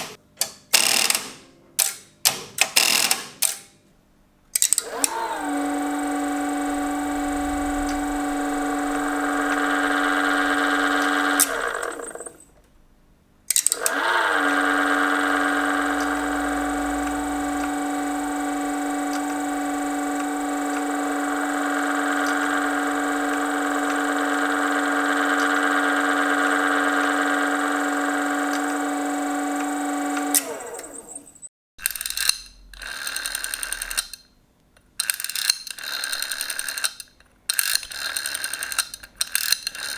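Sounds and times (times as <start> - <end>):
switch gear clicks: 4.6 - 12.5, 13.5 - 34.2
telephone exchange buzzing tone: 4.7 - 12.6, 13.6 - 34.1.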